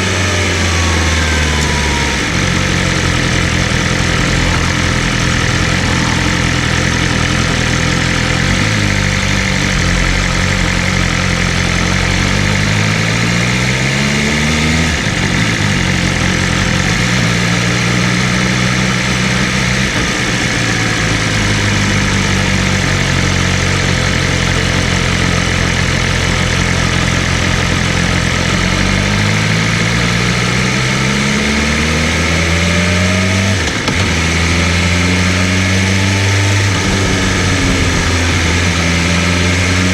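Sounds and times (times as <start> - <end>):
motorcycle engine accelerating: 0.0 - 39.9
wind rush: 2.2 - 10.1, 36.4 - 39.9.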